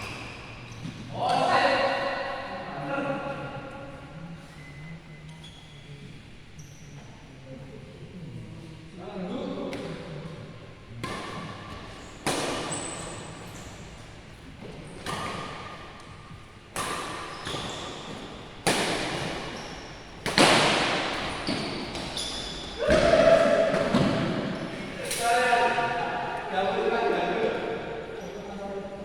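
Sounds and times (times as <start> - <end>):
rackets striking shuttlecock: 16.7 - 22.2.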